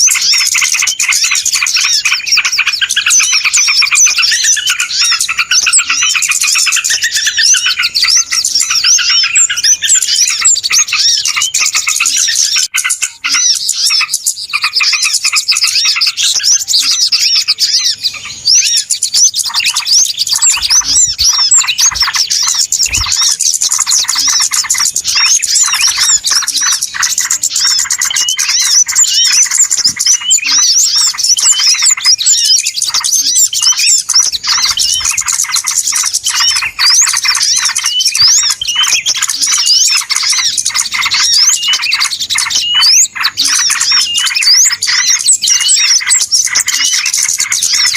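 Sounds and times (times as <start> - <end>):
small birds chirping chorus: 0.0 - 47.9.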